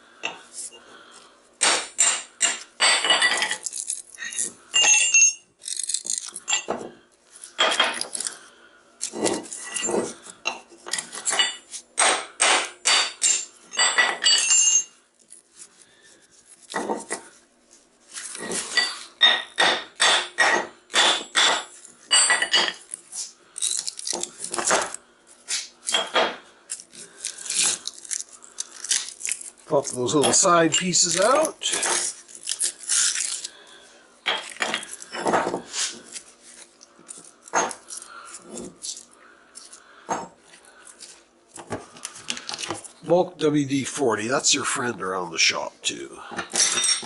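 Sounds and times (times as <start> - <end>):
metal parts clinking and clanking: 2.5 - 6.8, 9.0 - 10.1, 13.1 - 15.4, 20.4 - 22.9, 46.4 - 47.0.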